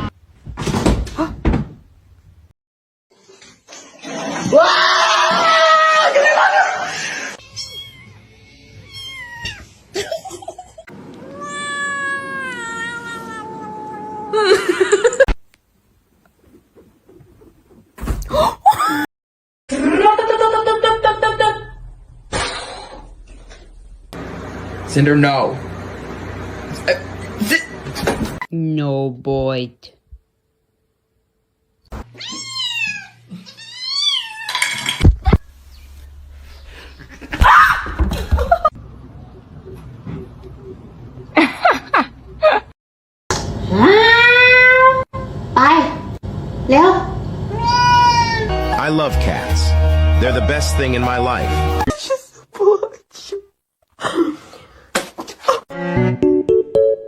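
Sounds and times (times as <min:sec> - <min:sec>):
cat yowling: 0:07.3 - 0:09.7, 0:11.2 - 0:14.4, 0:32.2 - 0:34.6, 0:43.8 - 0:45.1, 0:47.5 - 0:48.5
cat meowing: 0:07.4 - 0:09.7, 0:11.2 - 0:14.4, 0:32.2 - 0:34.6.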